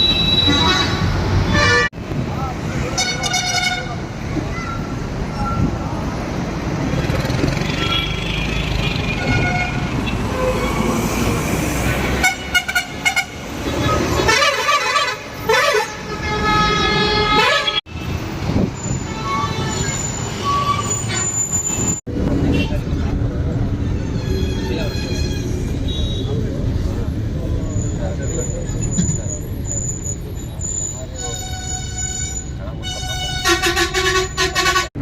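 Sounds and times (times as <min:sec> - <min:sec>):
bus engine and road rumble: 0:00.0 - 0:35.0
long steady horn honk: 0:14.2 - 0:17.9, 0:31.5 - 0:35.0
stuttering horn toots: 0:31.1 - 0:35.0.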